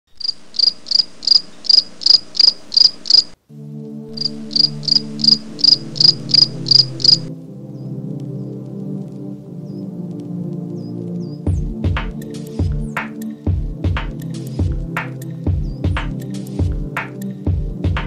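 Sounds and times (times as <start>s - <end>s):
insect chirping: 0.1s - 3.4s, 4.1s - 7.3s
music with low tones: 3.5s - 18.0s.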